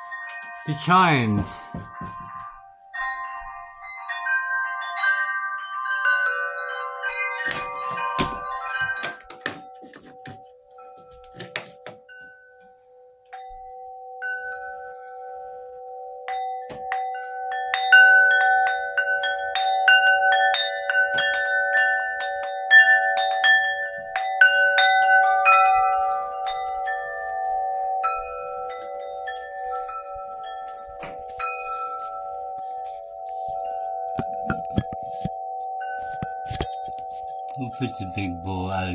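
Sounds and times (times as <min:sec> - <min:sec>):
low chime tones: 0:00.0 - 0:11.4, 0:12.0 - 0:38.9
struck higher chime notes: 0:00.5 - 0:02.3.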